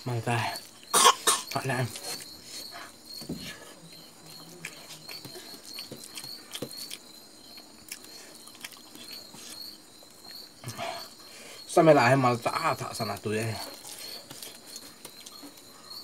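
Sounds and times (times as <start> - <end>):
chewing and lip-smacking: 3.9 - 10.5, 13.7 - 15.7.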